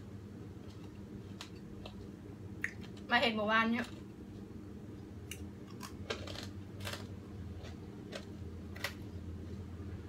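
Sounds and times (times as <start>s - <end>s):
low steady hum: 0.0s - 10.0s
wet chewing clicks and smacks: 2.6s - 3.1s.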